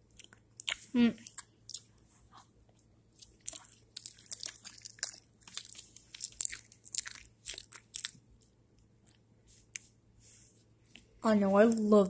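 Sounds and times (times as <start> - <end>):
chewing and crunching: 0.0 - 8.3.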